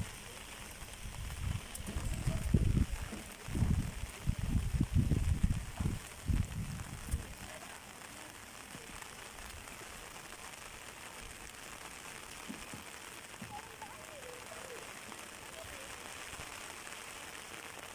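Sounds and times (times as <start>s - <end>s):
outdoor background hiss: 0.0s - 17.9s
faint distant voice: 13.3s - 16.7s.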